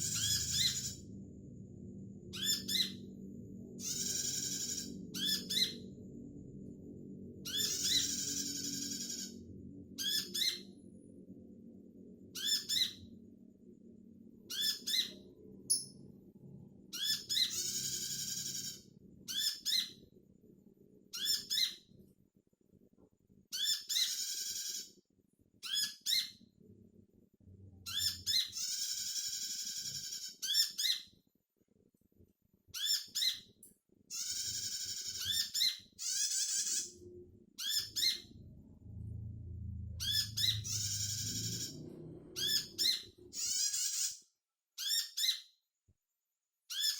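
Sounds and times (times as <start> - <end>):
faint low hum: 0.0 - 25.6, 33.6 - 43.5.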